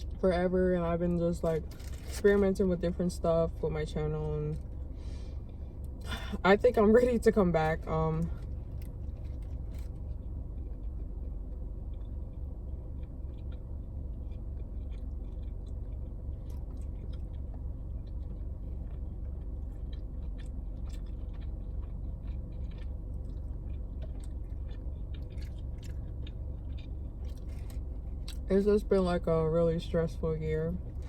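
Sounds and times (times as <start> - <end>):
steady low hum: 0.0 - 31.0
person chewing sandwich: 8.4 - 28.5.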